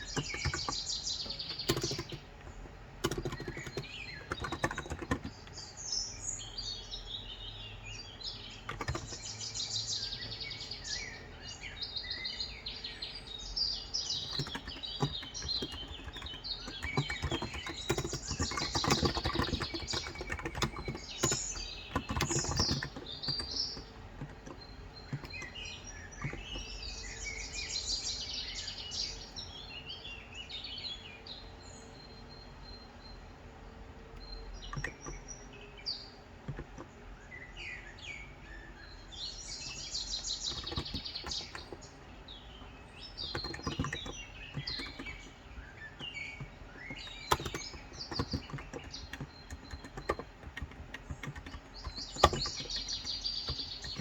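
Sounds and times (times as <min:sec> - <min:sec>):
keyboard typing: 0:00.0 - 0:05.7, 0:08.4 - 0:09.4, 0:14.0 - 0:27.2, 0:34.2 - 0:35.4, 0:36.2 - 0:37.2, 0:38.9 - 0:54.0
small birds chirping: 0:00.0 - 0:54.0.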